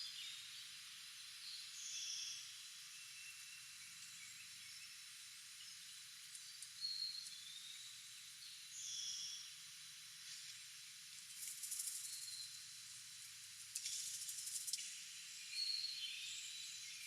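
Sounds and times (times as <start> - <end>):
steady high hiss: 0.0 - 17.0
rapid high ticks: 11.1 - 12.3, 13.7 - 15.0.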